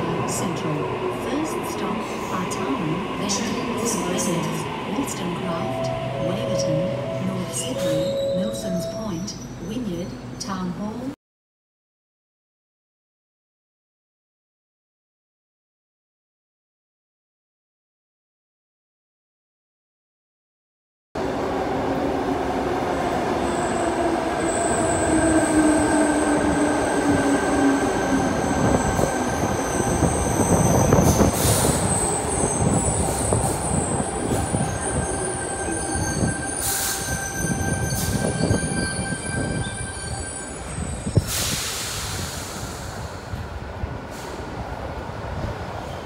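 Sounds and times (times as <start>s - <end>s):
air hiss bursts: 41.2s - 43.2s.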